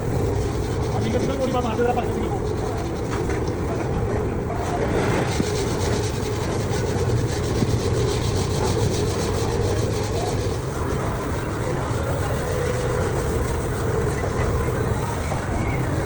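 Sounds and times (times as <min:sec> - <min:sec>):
fast even ticking: 0:00.0 - 0:16.0
workshop machinery running: 0:00.0 - 0:16.0.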